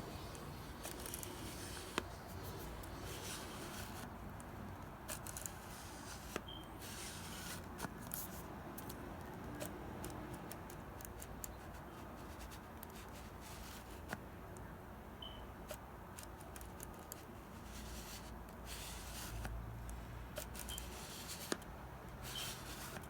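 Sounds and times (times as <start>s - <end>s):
zoom lens clicking and scratching: 0.2s - 4.1s, 4.8s - 8.4s, 15.7s - 19.6s, 20.4s - 23.0s.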